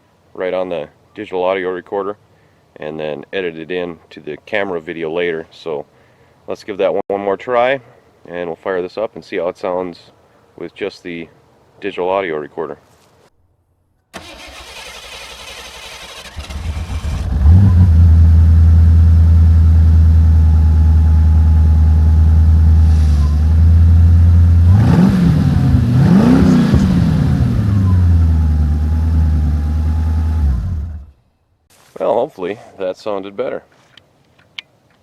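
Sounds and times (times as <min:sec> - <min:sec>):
car engine cranking and idling: 0:14.2 - 0:31.2
car engine revving: 0:15.5 - 0:31.1.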